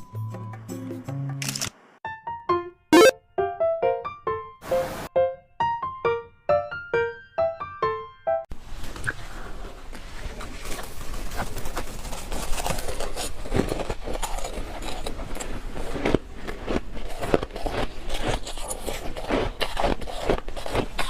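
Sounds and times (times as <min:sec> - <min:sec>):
chewing frost crunches: 0:10.6 - 0:21.0.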